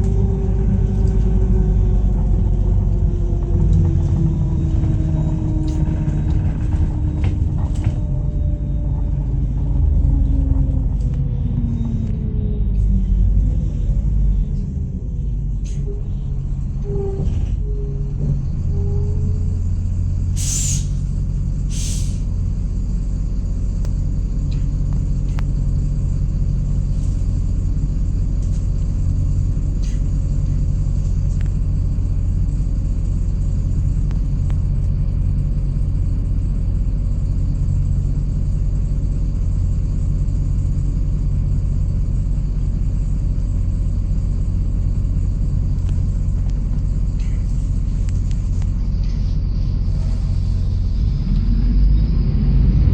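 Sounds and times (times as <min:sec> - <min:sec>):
bus engine and road rumble: 0:00.0 - 0:52.9
compressed air hisses: 0:20.4 - 0:21.0, 0:21.7 - 0:22.2.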